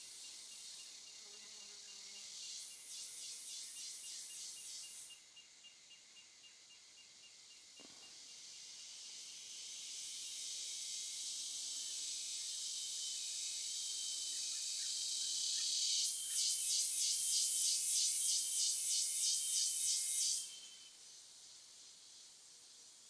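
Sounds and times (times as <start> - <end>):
high-pitched insect buzzing: 9.0 - 21.0.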